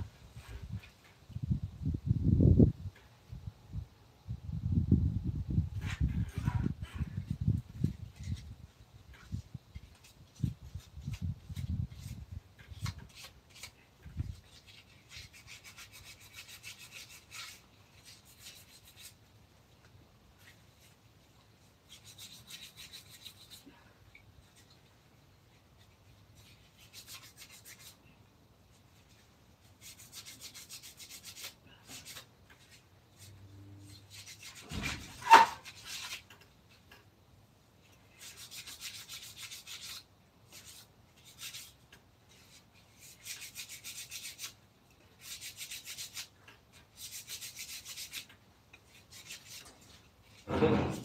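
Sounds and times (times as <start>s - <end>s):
hand scraping wood: 28.7s - 37.0s.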